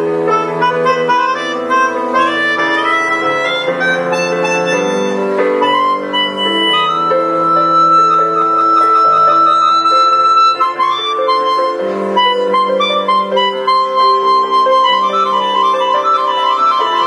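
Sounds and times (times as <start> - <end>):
melodica playing tune: 0.0 - 17.0.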